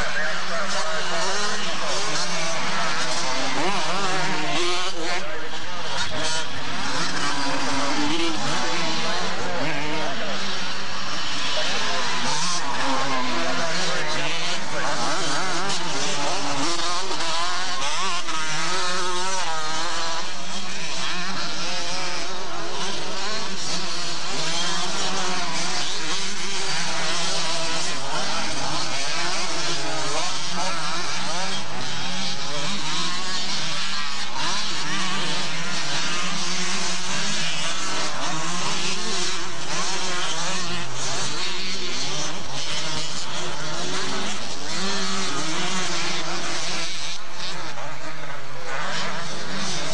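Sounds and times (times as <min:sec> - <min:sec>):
motocross bikes revving: 0:00.0 - 0:49.9.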